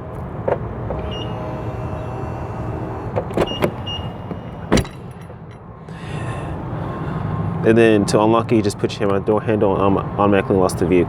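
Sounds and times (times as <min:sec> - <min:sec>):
folding side mirrors whirring: 0:00.0 - 0:06.8.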